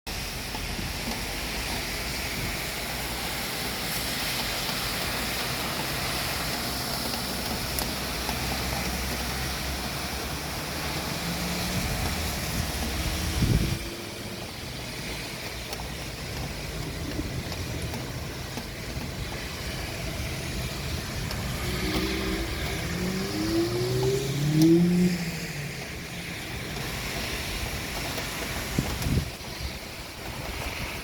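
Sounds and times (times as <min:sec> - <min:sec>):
outdoor background noise: 0:00.1 - 0:31.0
motor vehicle passing by: 0:21.4 - 0:26.4.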